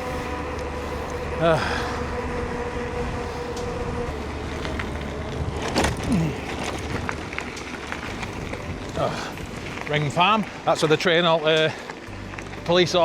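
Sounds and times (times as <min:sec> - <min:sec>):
bike tyre rumble: 0:00.0 - 0:13.0
wind buffeting microphone: 0:01.2 - 0:10.6.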